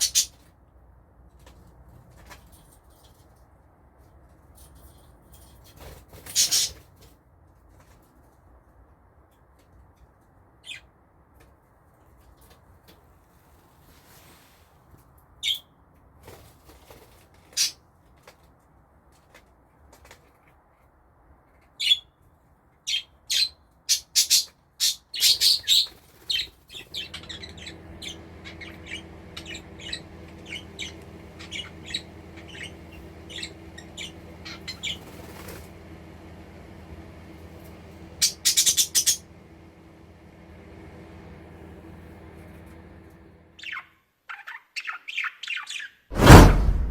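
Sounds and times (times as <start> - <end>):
budgerigars chirping: 26.8 - 35.1
steady low hum: 26.8 - 43.6, 46.1 - 46.9.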